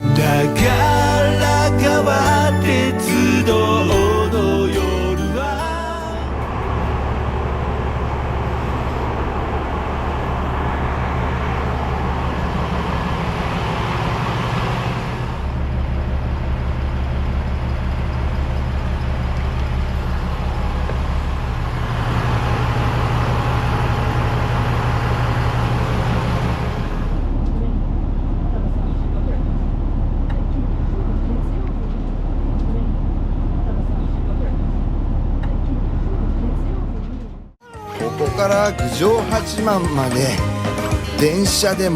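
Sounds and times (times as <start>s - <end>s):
vehicle engine droning: 0.0s - 37.6s.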